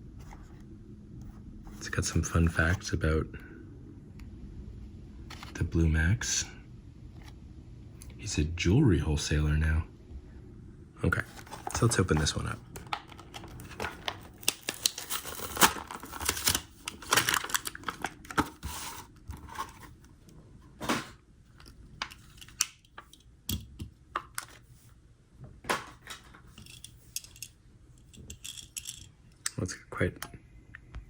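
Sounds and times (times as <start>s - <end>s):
packaging crinkling and tearing: 12.7s - 19.7s.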